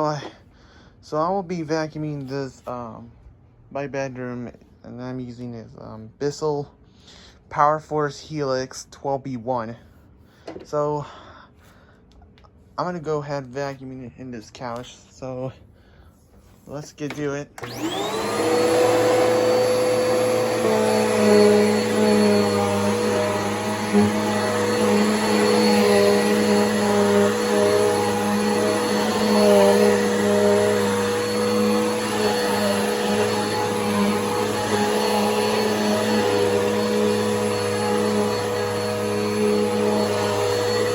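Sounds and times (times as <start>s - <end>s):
vacuum cleaner motor whine: 17.6s - 40.9s.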